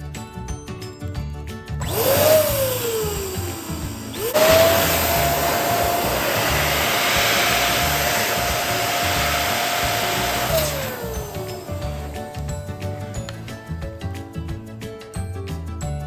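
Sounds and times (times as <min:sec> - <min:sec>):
electric balloon pump whine: 0:01.8 - 0:12.4.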